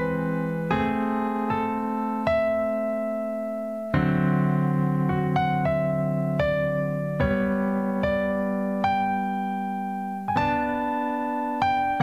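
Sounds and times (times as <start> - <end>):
piano chords: 0.0 - 12.0.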